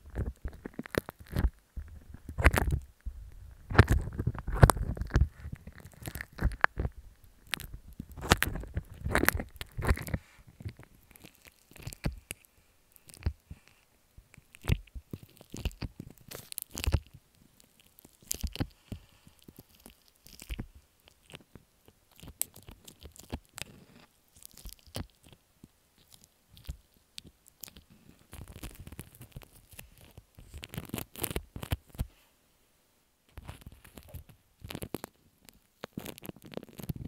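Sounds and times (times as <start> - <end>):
slime squishing and squelching: 0.0 - 25.4, 26.0 - 32.1, 33.4 - 37.0.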